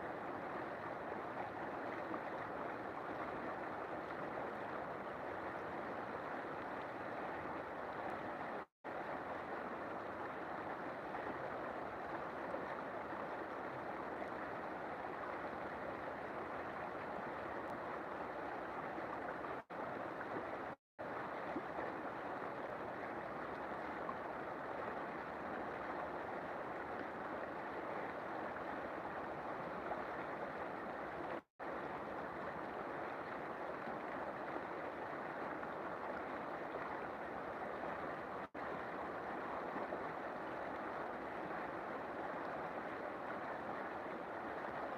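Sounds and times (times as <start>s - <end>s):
river water flowing: 0.0s - 44.9s.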